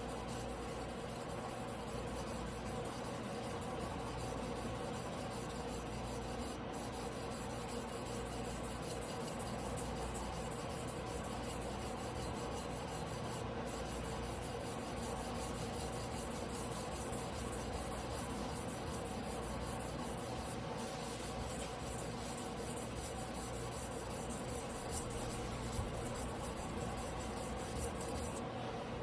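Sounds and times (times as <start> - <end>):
blade scraping on whetstone: 13.8 - 28.4.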